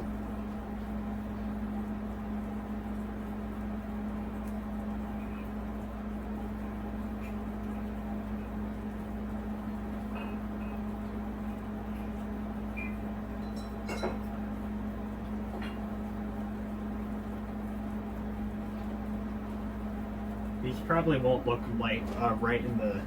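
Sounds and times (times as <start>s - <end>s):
low electrical hum: 0.0s - 23.0s
faint clinks and taps: 13.4s - 14.3s.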